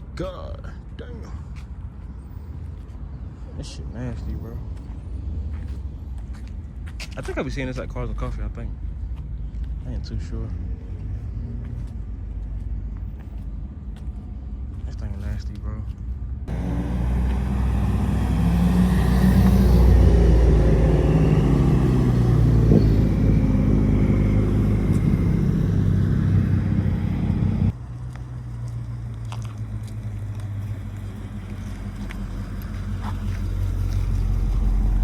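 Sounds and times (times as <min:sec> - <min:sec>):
car engine running: 0:16.4 - 0:35.0.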